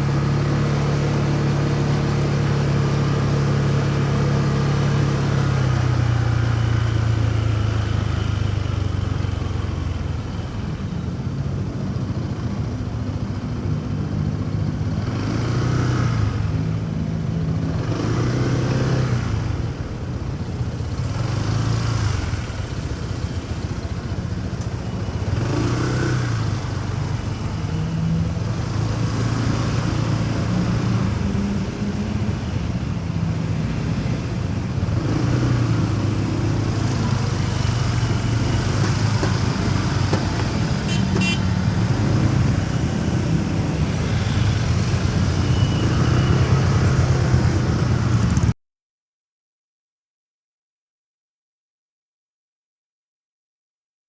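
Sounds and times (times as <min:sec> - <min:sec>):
passing vehicles: 0:00.0 - 0:48.6
road noise: 0:00.0 - 0:48.6
motorcycle engine running: 0:20.6 - 0:45.7.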